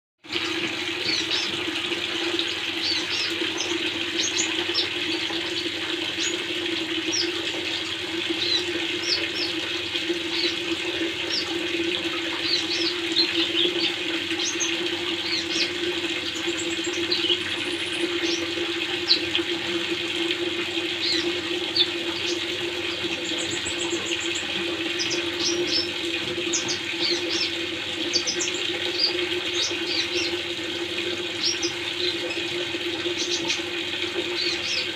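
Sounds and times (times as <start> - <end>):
water running and splashing: 0.2 - 34.9.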